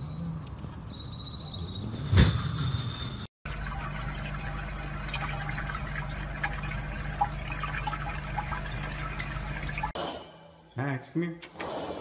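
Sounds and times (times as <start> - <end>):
faucet water running into sink: 3.5 - 10.0.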